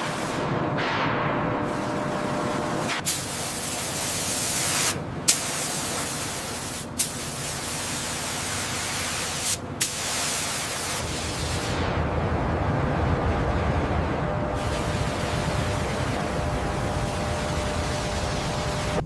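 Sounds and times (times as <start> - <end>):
high-pressure jet hissing: 2.9 - 11.7.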